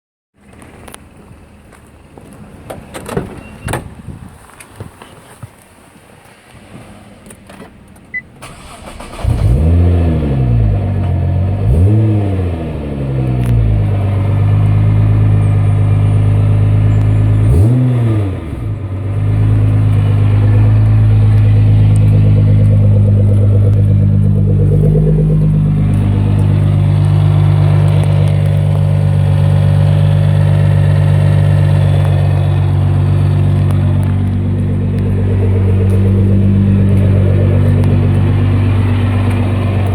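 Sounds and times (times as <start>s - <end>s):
car engine idling: 8.4s - 39.9s
car engine starting and revving: 8.4s - 39.9s.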